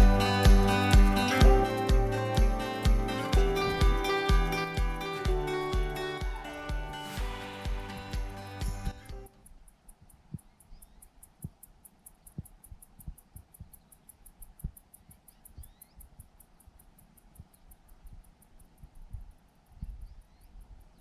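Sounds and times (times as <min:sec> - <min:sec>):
soft low thumps: 0:00.0 - 0:09.3.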